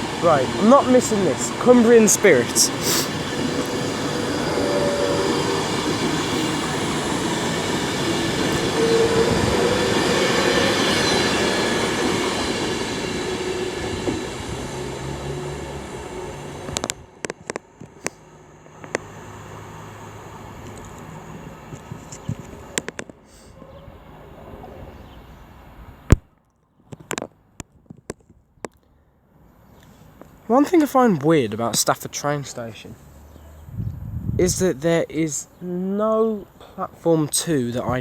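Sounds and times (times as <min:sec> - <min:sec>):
train wheels rushing on rails: 0:00.0 - 0:23.2.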